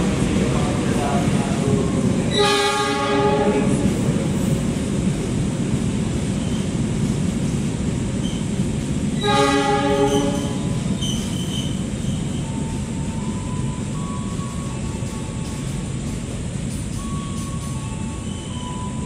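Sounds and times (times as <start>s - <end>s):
train carriages rumbling: 0.0s - 19.0s
train horn blast: 2.3s - 3.9s, 9.2s - 10.8s
high-pitched wheel squeals: 10.0s - 15.8s, 17.0s - 19.0s.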